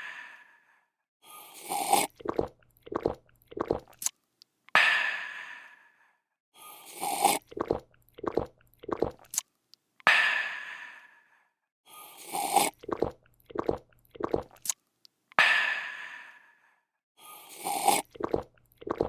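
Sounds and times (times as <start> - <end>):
person slurping a drink: 1.5 - 4.1, 6.8 - 9.4, 12.1 - 14.8, 17.4 - 19.0
person gulping: 1.7 - 4.0, 7.2 - 9.4, 12.4 - 14.7, 17.9 - 19.0.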